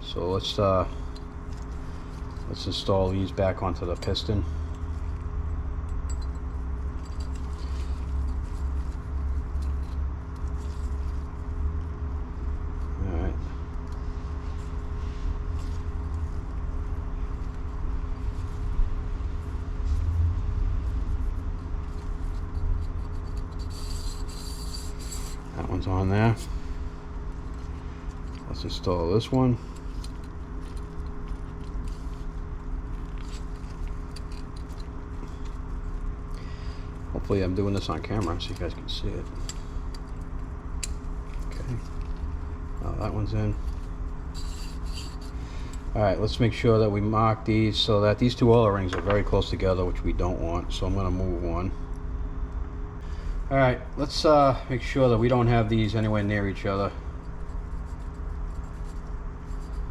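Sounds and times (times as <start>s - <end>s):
low workshop hum: 0.0s - 59.9s
small metal parts clicking: 5.9s - 11.0s, 21.8s - 25.5s, 32.9s - 36.4s, 43.6s - 45.8s
piston ring clicks and scrapes: 21.3s - 25.6s, 29.6s - 36.4s, 37.6s - 42.3s, 43.6s - 45.9s, 57.1s - 59.9s.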